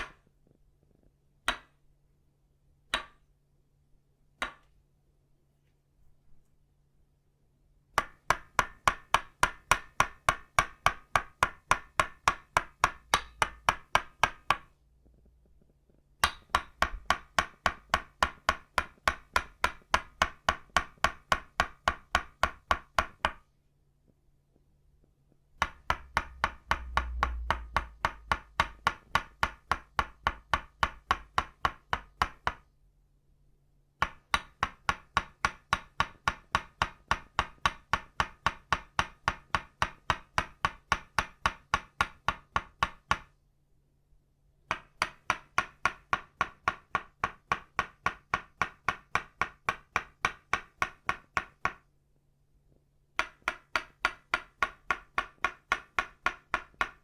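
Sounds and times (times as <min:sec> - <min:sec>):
wooden mallet tapping wooden stake: 0:00.0 - 0:00.3, 0:01.4 - 0:01.8, 0:02.9 - 0:03.3, 0:04.4 - 0:04.7, 0:08.0 - 0:15.2, 0:16.2 - 0:23.5, 0:25.6 - 0:32.7, 0:34.0 - 0:43.4, 0:44.7 - 0:51.9, 0:53.2 - 0:57.0.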